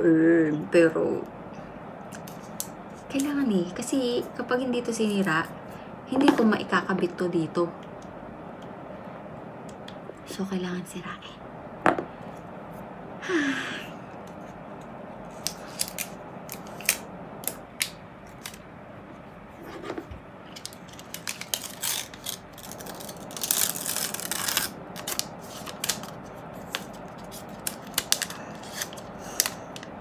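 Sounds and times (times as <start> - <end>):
packaging tearing: 15.4 - 18.6, 20.6 - 29.9
packaging being cut with snips: 20.6 - 29.9.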